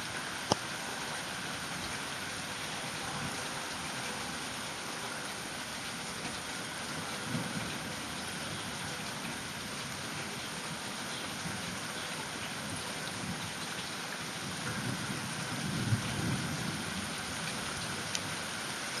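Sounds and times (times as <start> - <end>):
steady rain falling: 0.0 - 19.0
low rumble of thunder: 6.9 - 10.2, 14.4 - 18.4.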